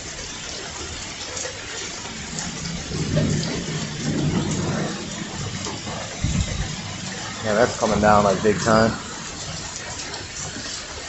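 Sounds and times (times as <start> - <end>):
heavy rain pouring: 0.0 - 11.0
low rumble: 2.1 - 10.0.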